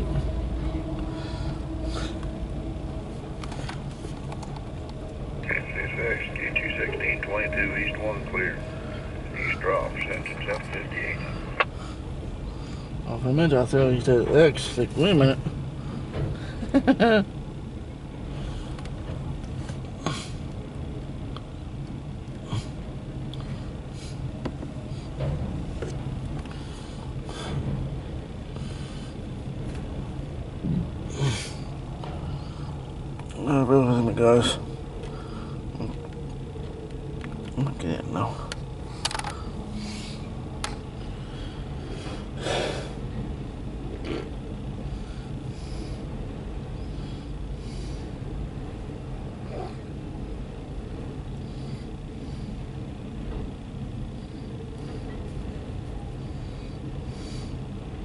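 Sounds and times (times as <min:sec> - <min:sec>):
freight train rumbling by: 0:00.0 - 0:19.4
freight train rumble: 0:00.0 - 0:58.0.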